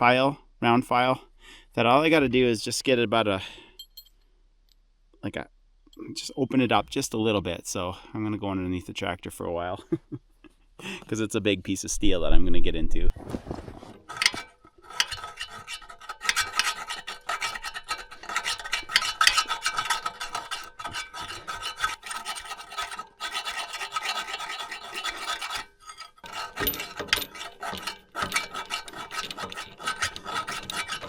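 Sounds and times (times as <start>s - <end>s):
file rasping on steel: 14.0s - 31.0s.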